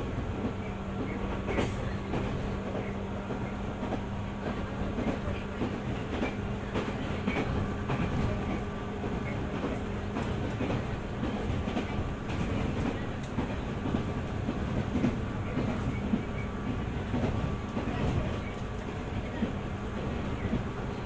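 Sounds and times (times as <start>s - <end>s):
rail joint clacks: 0.0s - 21.0s
train wheels rumbling on rail: 0.0s - 21.0s.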